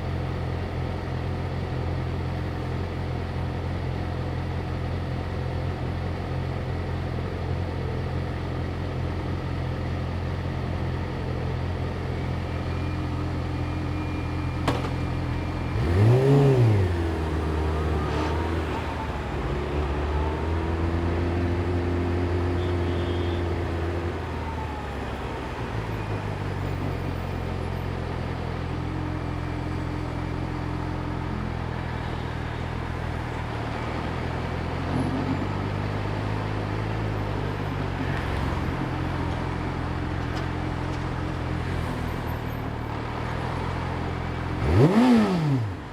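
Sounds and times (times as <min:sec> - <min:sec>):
motorcycle engine idling: 0:00.0 - 0:18.0, 0:22.5 - 0:34.8.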